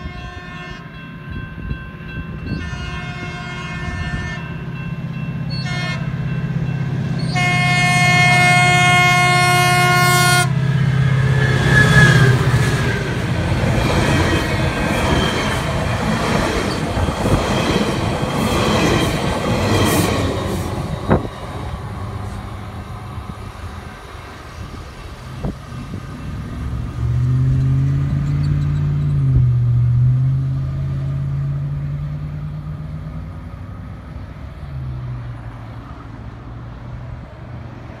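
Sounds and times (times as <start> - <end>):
wheels on rails: 10.6 - 29.8.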